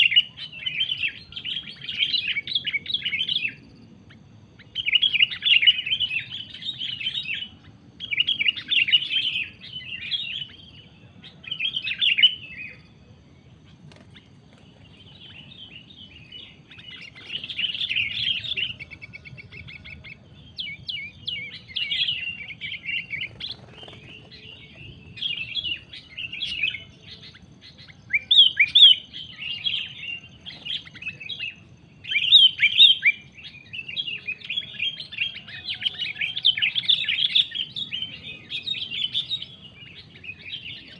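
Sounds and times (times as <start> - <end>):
bird chattering calls: 13.6 - 40.9.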